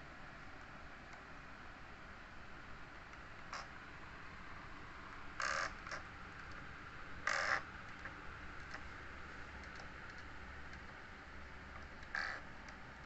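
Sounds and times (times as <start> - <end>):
harsh bird calls: 5.4 - 6.1, 7.2 - 7.7, 12.0 - 12.5.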